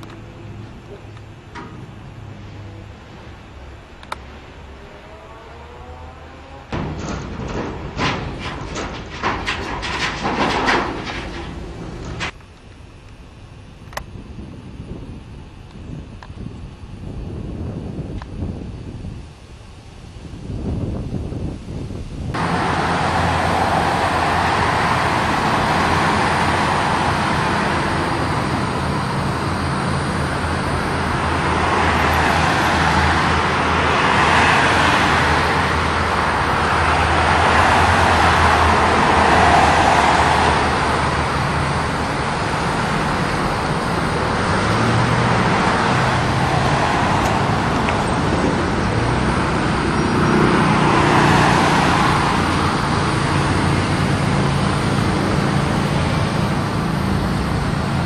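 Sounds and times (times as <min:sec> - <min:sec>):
train wheels rushing on rails: 0:06.6 - 0:12.4, 0:22.3 - 0:58.0.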